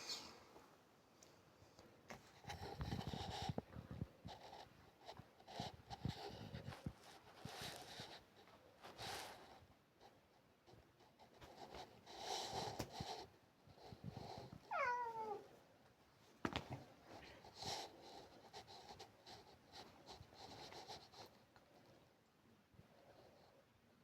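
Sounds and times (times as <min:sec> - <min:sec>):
faint scratchy rustling: 0:00.0 - 0:15.4, 0:16.2 - 0:22.1
cat meowing: 0:14.7 - 0:15.5.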